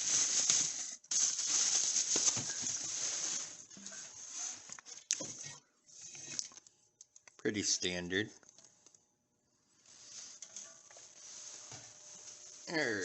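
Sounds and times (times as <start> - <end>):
plastic packaging crinkling: 0.0 - 5.0.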